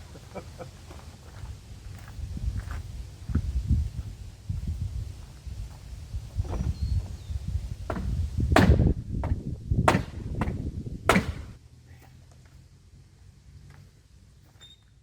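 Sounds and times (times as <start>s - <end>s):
sharp knocks or bangs: 7.9s - 11.6s.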